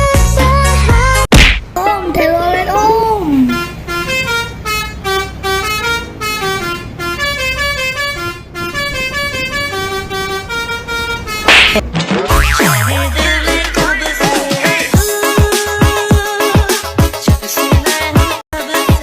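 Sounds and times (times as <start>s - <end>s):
multi-tone air horn tune: 3.5s - 11.5s.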